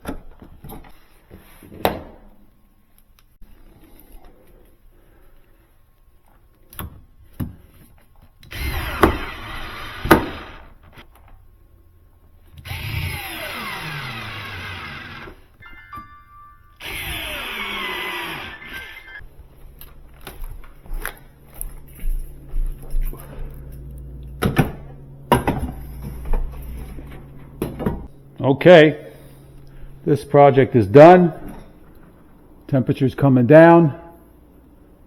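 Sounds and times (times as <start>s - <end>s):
power drill running: 8.5s - 10.7s, 12.6s - 15.5s, 16.8s - 19.2s.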